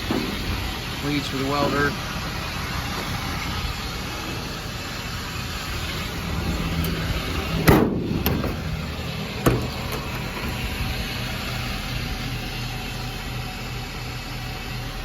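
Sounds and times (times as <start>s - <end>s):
diesel engine idling: 0.0s - 15.0s
loud bang: 7.5s - 8.8s.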